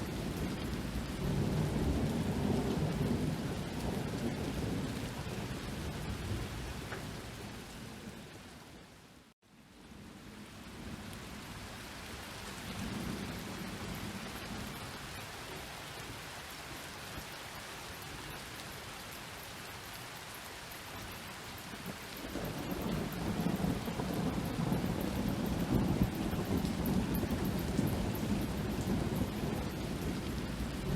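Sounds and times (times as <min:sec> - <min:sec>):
thunder rumbling: 0:00.0 - 0:08.3, 0:12.6 - 0:16.0, 0:20.9 - 0:30.9
steady rain falling: 0:00.0 - 0:30.9.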